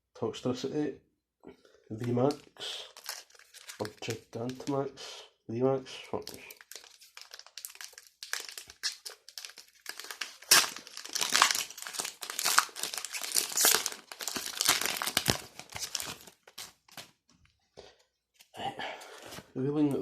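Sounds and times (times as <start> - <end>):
foil wrapper crinkling: 2.3 - 4.7, 6.2 - 17.2.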